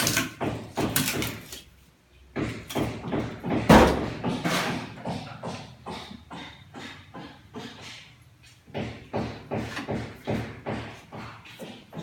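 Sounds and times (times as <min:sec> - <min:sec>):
knocks and bangs: 0:02.3 - 0:07.8, 0:08.7 - 0:12.0.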